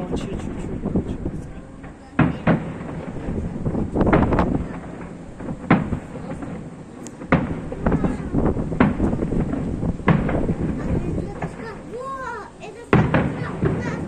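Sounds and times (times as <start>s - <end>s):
fireworks booming: 0.0s - 14.0s.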